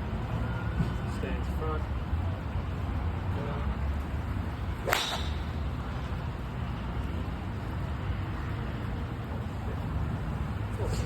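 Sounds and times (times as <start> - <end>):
golf club striking ball: 4.8 - 5.6.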